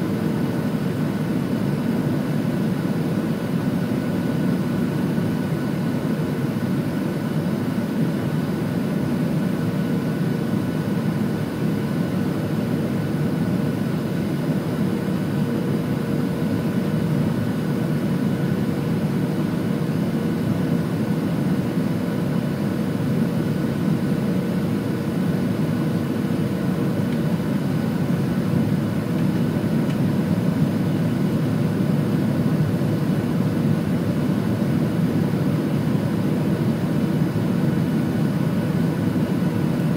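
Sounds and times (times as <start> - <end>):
jet engines droning: 0.0 - 39.9.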